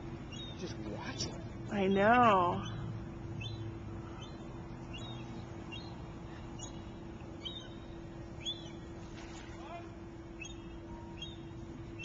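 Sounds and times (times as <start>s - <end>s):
outdoor background noise: 0.0s - 12.0s
steady low hum: 0.0s - 12.0s
small bird chirping: 0.3s - 0.8s, 2.6s - 8.8s, 10.4s - 12.0s.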